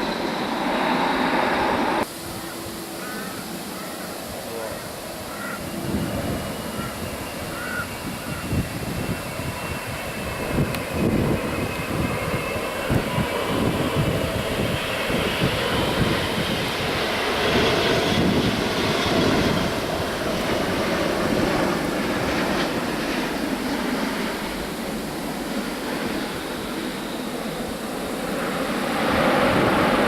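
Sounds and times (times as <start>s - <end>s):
jet engines roaring: 0.0s - 30.0s
wind buffeting microphone: 5.6s - 24.7s, 27.8s - 30.0s.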